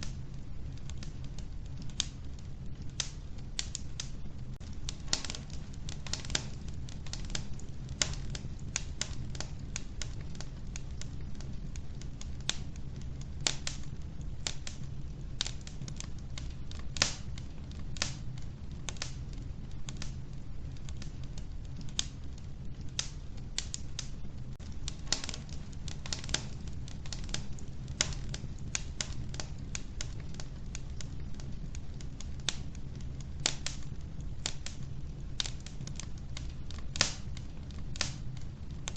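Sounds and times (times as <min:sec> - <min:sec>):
low rumble of flames: 0:00.0 - 0:38.9
wood crackling and popping: 0:00.0 - 0:38.9.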